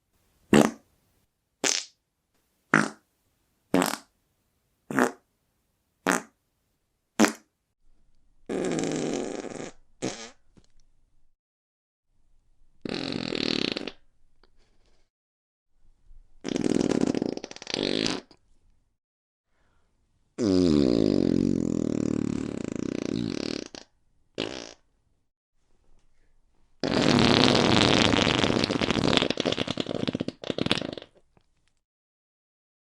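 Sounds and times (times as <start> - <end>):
fart sound effects: 0.5 - 0.8, 1.6 - 2.0, 2.7 - 3.0, 3.7 - 4.1, 4.9 - 5.2, 6.1 - 6.4, 7.2 - 7.5, 8.5 - 10.4, 12.8 - 14.0, 16.4 - 18.4, 20.4 - 24.8, 26.8 - 31.2.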